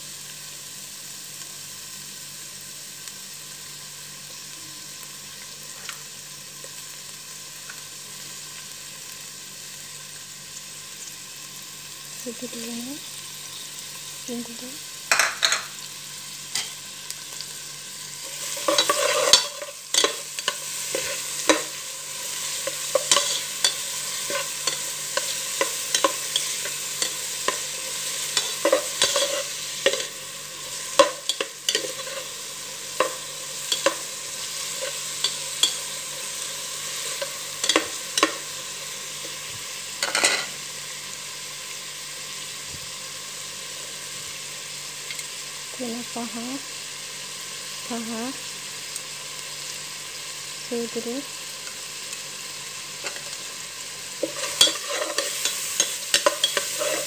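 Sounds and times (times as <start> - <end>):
onion sizzling in hot oil: 0.0 - 57.0
utensil scraping and clacking pot: 18.2 - 32.3, 54.2 - 57.0.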